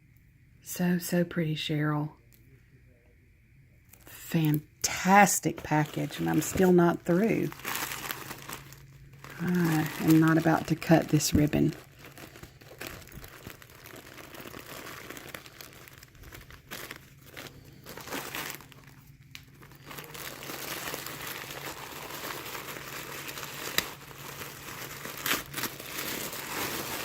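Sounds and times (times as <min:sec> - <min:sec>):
wrapping crinkling and rustling: 0:03.9 - 0:27.0.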